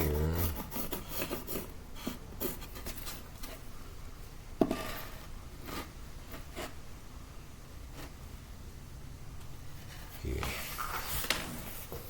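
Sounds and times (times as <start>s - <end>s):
scratching and rubbing of board: 0.0s - 3.3s.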